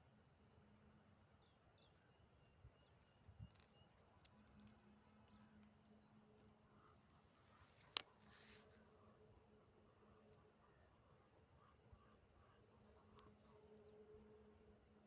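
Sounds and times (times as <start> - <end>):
insect chirping: 6.0 - 15.0.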